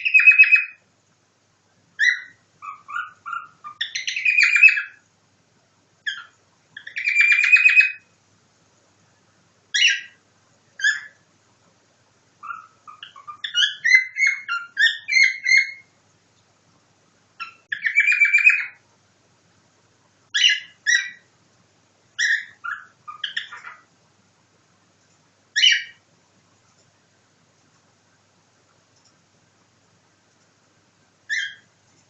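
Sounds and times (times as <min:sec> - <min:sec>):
buzzy bird trill: 0:00.0 - 0:00.8, 0:02.0 - 0:05.0, 0:06.0 - 0:08.2, 0:09.7 - 0:10.2, 0:10.8 - 0:11.2, 0:12.4 - 0:16.0, 0:17.4 - 0:18.8, 0:20.3 - 0:21.3, 0:22.2 - 0:23.9, 0:25.6 - 0:26.0, 0:31.3 - 0:31.7
sharp bird calls: 0:00.0 - 0:00.8, 0:02.0 - 0:05.0, 0:06.0 - 0:08.2, 0:09.8 - 0:10.2, 0:10.8 - 0:11.2, 0:12.4 - 0:16.0, 0:17.4 - 0:18.8, 0:20.3 - 0:21.3, 0:22.2 - 0:23.9, 0:25.6 - 0:26.0, 0:31.3 - 0:31.7.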